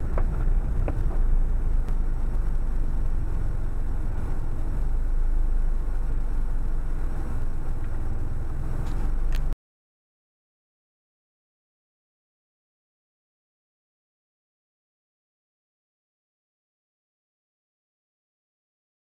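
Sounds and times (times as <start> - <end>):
car engine and road noise: 0.0 - 9.6.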